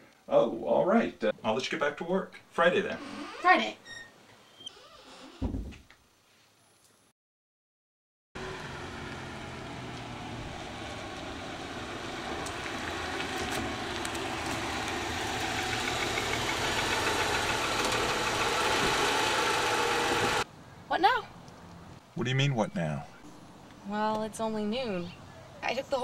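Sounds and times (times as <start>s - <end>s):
car engine running: 8.4s - 20.4s.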